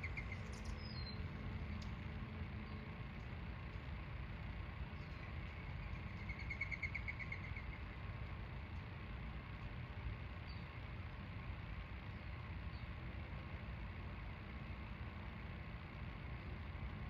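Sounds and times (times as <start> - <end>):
bird trilling: 0.0 - 1.2, 6.1 - 7.9
distant traffic rumble: 0.0 - 17.0.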